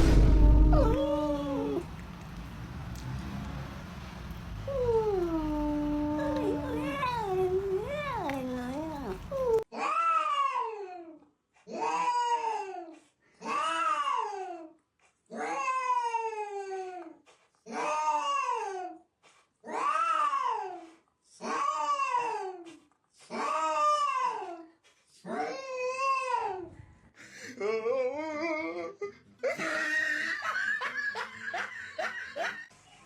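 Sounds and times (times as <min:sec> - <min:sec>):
cat yowling: 0:00.7 - 0:01.9, 0:04.7 - 0:10.8.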